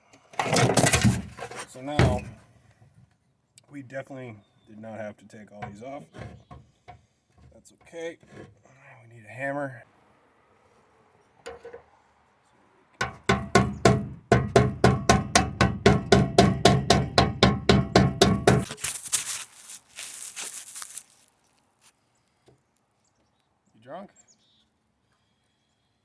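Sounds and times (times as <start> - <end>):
hammer striking metal: 13.0 - 18.7.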